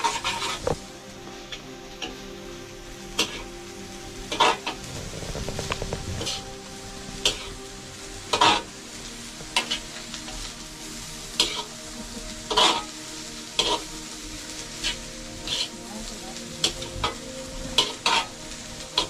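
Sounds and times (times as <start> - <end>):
food sizzling in a pan: 0.0 - 19.0
utensil scraping a pan: 4.3 - 6.5, 12.5 - 12.9, 14.8 - 15.8.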